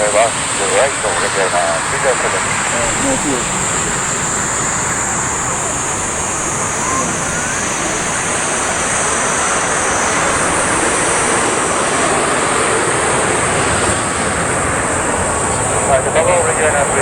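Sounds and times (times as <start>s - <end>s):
constant high hiss: 0.0s - 11.6s.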